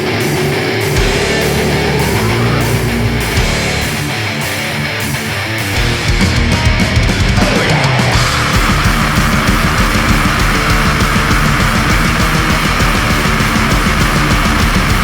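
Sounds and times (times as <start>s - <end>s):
distorted guitars: 0.0s - 15.0s
fast drumming: 0.0s - 15.0s.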